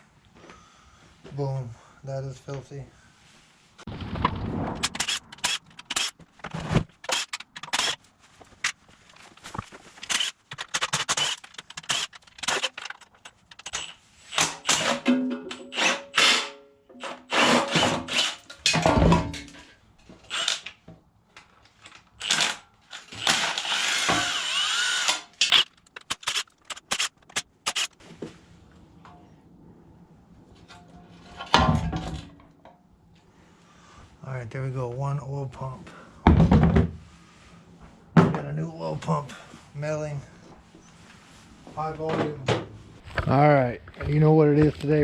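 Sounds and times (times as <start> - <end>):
handheld power tool spinning bolts: 4.9 - 6.2, 7.0 - 8.1, 10.0 - 18.8, 20.2 - 20.8, 21.8 - 28.0
metal clanks of tools: 10.0 - 17.2, 18.4 - 19.8.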